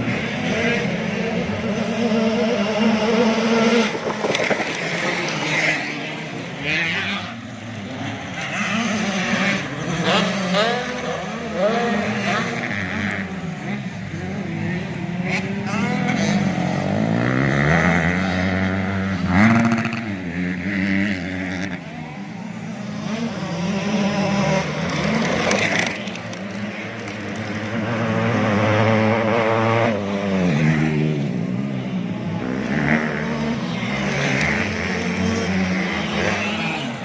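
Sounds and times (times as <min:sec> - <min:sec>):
motocross bike engines revving: 0:00.0 - 0:37.0.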